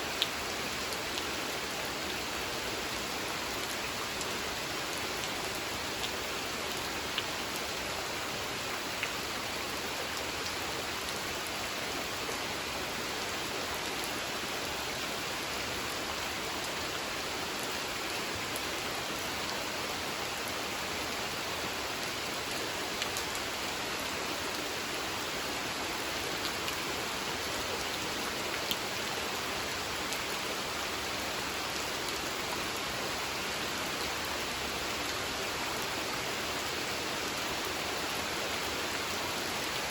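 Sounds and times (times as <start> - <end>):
steady rain on a pond: 0.0 - 39.9.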